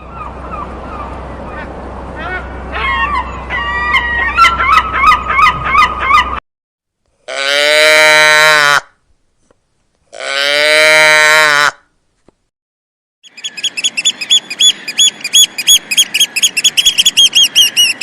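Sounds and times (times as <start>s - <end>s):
geese honking: 0.0s - 6.4s, 13.3s - 18.0s.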